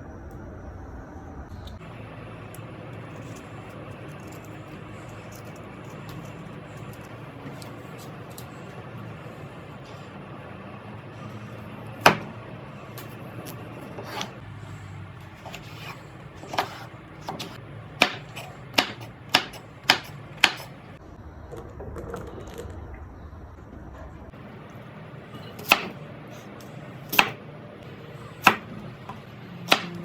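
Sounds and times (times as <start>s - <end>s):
knife chopping on cutting board: 11.9s - 12.4s, 13.0s - 14.4s, 15.4s - 20.8s, 25.5s - 26.0s, 27.1s - 27.4s, 28.4s - 30.0s.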